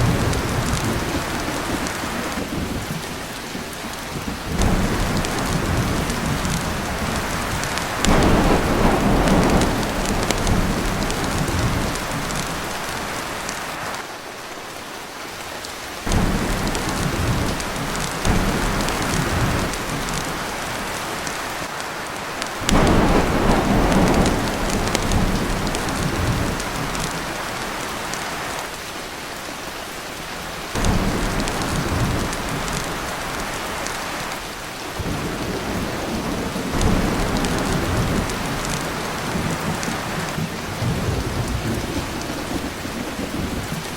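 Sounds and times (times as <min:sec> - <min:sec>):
heavy rain on a tin roof: 0:00.0 - 0:43.9
rolls of thunder: 0:04.5 - 0:12.7, 0:22.6 - 0:27.2.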